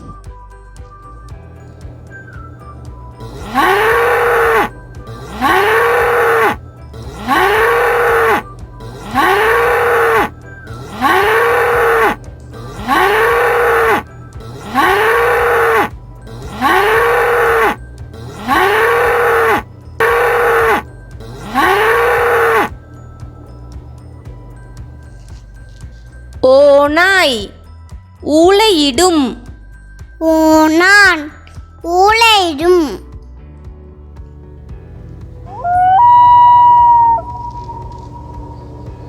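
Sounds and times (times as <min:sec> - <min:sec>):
ox mooing: 0:03.2 - 0:22.8, 0:35.5 - 0:38.9.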